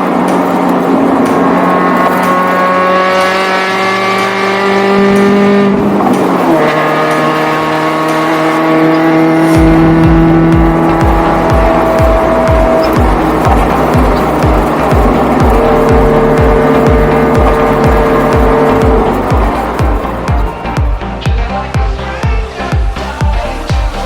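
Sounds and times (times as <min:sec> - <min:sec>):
car exhaust accelerating: 0:00.0 - 0:24.0
music beat with thumping bass: 0:00.0 - 0:24.0.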